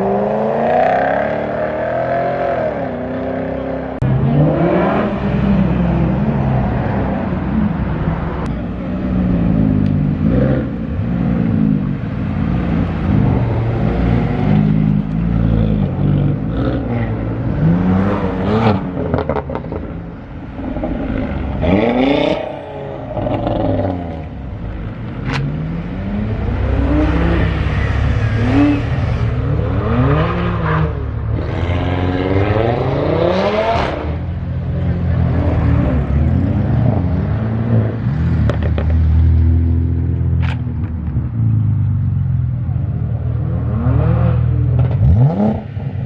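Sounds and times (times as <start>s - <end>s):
car engines revving: 0.0s - 46.0s.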